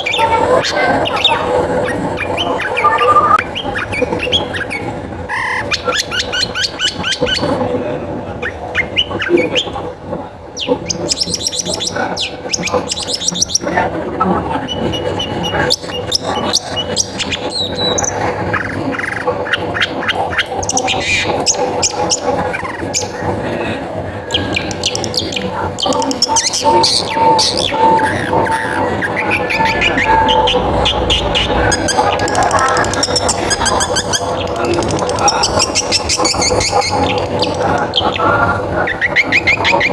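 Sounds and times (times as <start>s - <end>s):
shrike chattering song: 0.0s - 4.7s, 14.6s - 23.5s, 24.2s - 39.9s.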